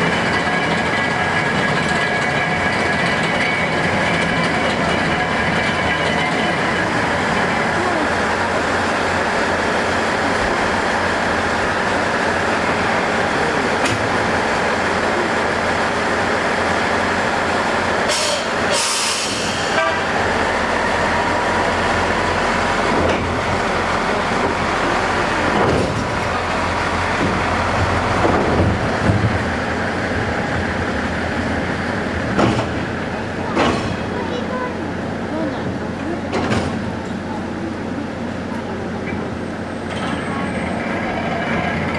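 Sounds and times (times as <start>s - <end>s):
railway vehicle mechanical rumble: 0.0s - 41.9s
sharp hiss of air: 18.1s - 19.8s.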